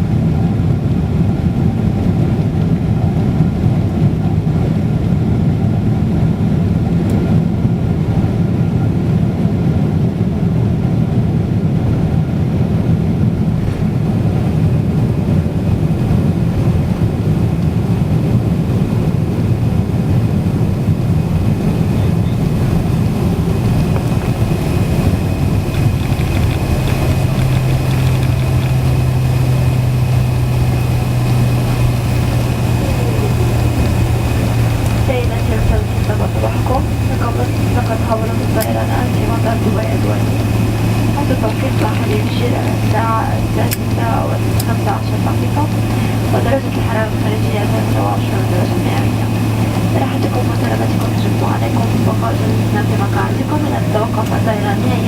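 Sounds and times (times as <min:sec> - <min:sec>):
jet engine rumble in cabin: 0:00.0 - 0:55.0
steady low hum: 0:00.0 - 0:55.0.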